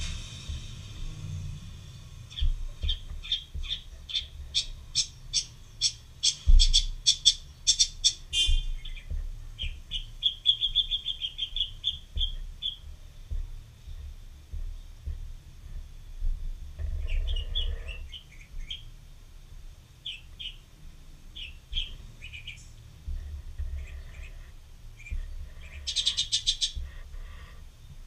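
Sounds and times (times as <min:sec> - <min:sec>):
bird calling and trilling: 0:02.3 - 0:13.0, 0:16.8 - 0:18.9, 0:20.0 - 0:20.7, 0:21.3 - 0:27.6.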